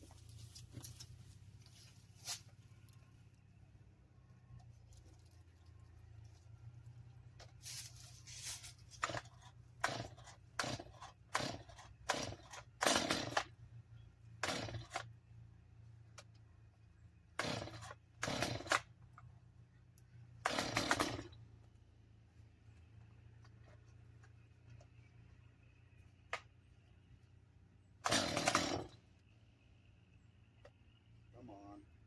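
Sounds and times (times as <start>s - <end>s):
chainsaw starter cord pulled: 8.9s - 13.5s, 14.4s - 15.1s, 17.4s - 18.9s, 20.4s - 21.4s, 28.0s - 29.0s.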